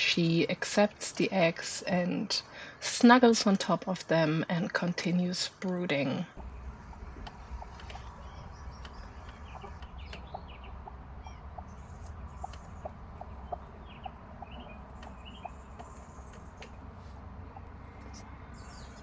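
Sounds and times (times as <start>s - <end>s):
chickens clucking: 6.4s - 19.0s
steady low hum: 6.4s - 19.0s.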